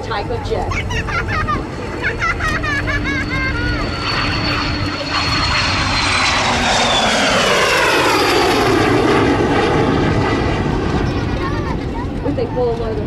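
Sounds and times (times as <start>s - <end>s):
jet aircraft flying past: 0.0s - 13.0s.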